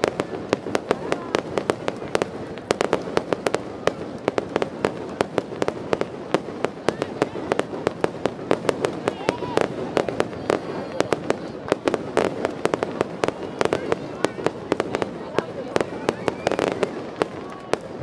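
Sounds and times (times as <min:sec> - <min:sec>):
fireworks banging: 0:00.0 - 0:18.0.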